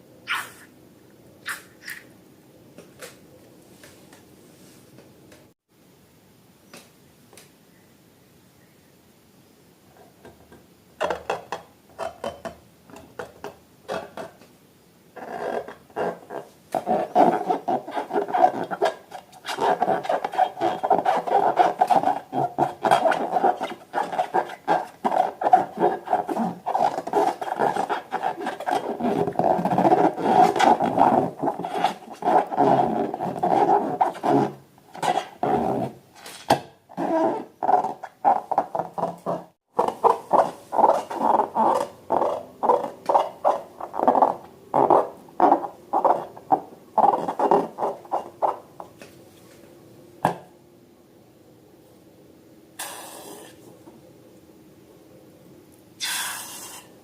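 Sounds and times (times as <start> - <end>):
rubber balloons squeaking: 15.2 - 36.0, 36.9 - 48.7.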